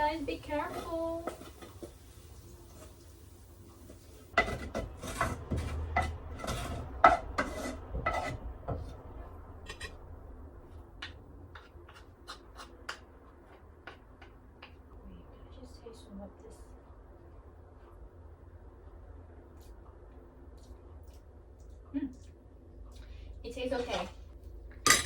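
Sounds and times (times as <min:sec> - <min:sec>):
utensil scraping a frying pan: 0:00.0 - 0:03.0, 0:03.9 - 0:10.0.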